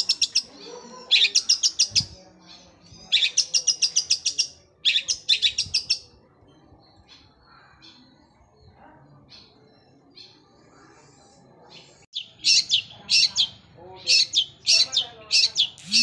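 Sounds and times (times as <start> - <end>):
shrike singing rapid notes: 15.6 - 16.0.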